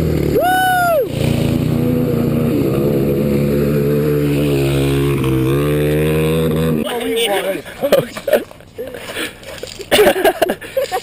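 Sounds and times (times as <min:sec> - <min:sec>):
dirt bike engine running: 0:00.0 - 0:06.9.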